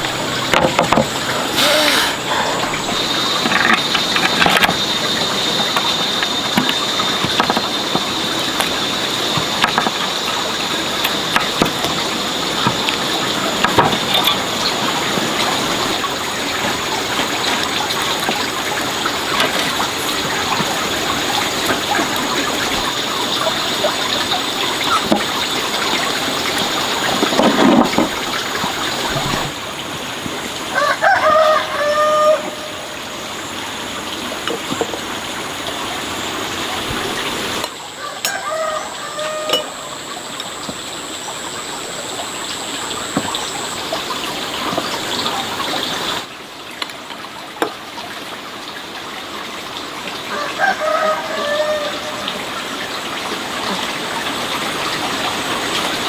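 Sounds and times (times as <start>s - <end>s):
rooster crowing: 30.7s - 32.9s, 38.0s - 39.9s, 50.3s - 52.3s.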